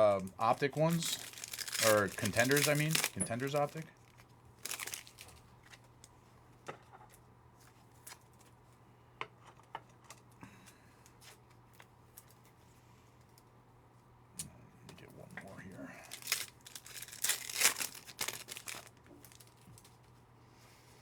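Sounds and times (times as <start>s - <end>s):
low steady hum: 0.0s - 9.2s
cards clicking and rustling: 0.1s - 3.9s, 4.6s - 5.8s, 16.1s - 20.0s.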